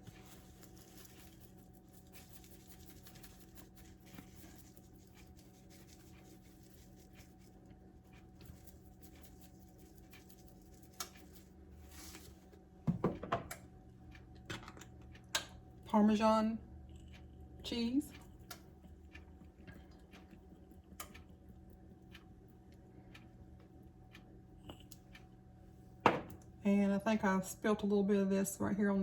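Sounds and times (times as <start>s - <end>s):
seasoning pattering onto chicken: 0.0s - 12.4s
steady low hum: 0.0s - 29.0s.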